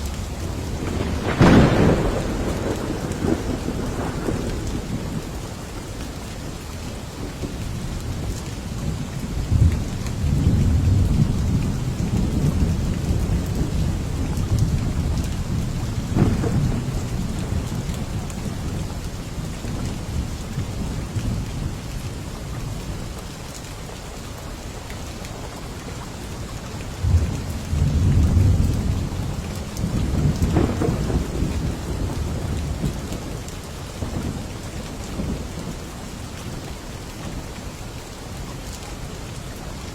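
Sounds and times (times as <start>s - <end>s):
thunder rumbling: 0.0s - 6.0s, 8.9s - 19.0s, 27.0s - 35.9s
steady rain falling: 0.0s - 39.9s.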